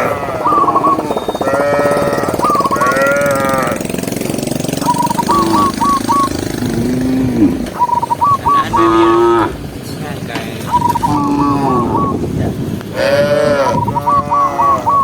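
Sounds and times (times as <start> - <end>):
cattle mooing: 0.0 - 4.0, 4.8 - 9.6, 10.8 - 12.2, 12.9 - 15.0
fast steady pulsing noise: 0.0 - 8.8.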